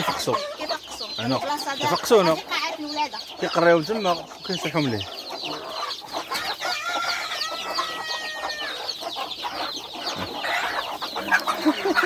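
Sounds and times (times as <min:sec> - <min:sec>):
chickens clucking: 0:00.0 - 0:12.0
chicks peeping: 0:00.0 - 0:12.0
long drawn-out chicken call: 0:06.3 - 0:12.0.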